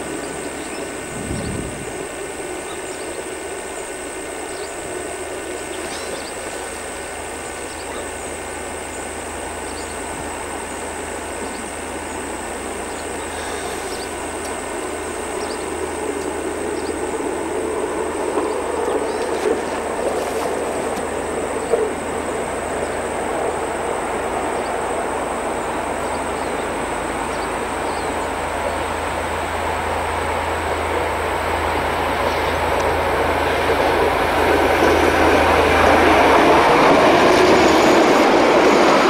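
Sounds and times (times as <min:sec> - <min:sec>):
distant train rumbling: 0:00.0 - 0:39.0.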